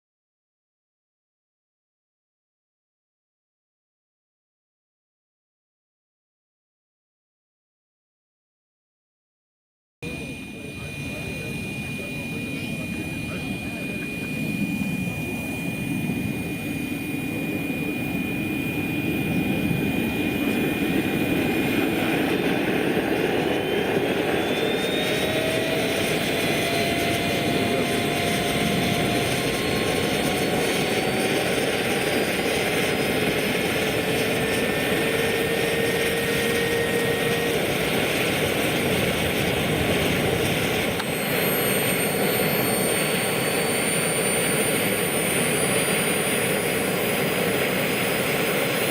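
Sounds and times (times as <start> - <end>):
model helicopter turbine whine: 10.0 - 48.9.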